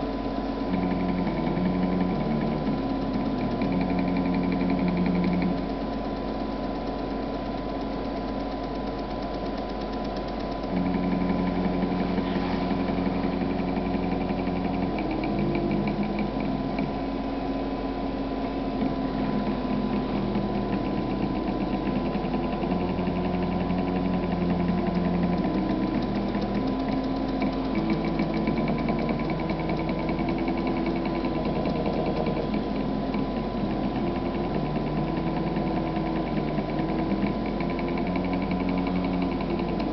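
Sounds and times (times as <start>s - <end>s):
stepper motors humming: 0.0s - 39.9s.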